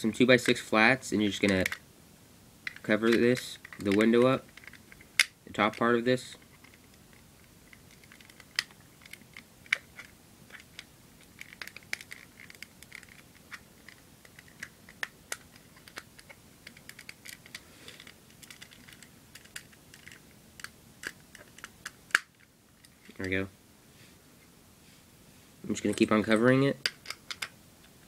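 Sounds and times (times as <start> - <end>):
plastic bricks clicking and rattling: 7.7 - 22.2
plastic pieces snapping: 7.7 - 22.4.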